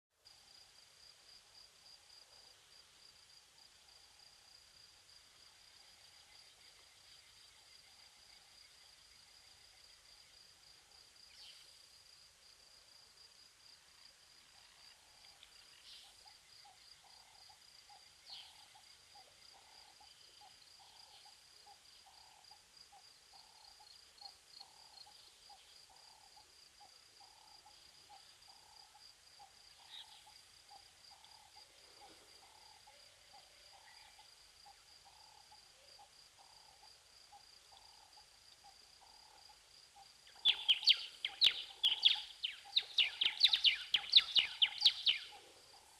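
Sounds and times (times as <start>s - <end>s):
low pulsing insect call: 0.2s - 45.9s
crickets trilling: 0.3s - 45.9s
short bird chirps: 40.5s - 45.4s.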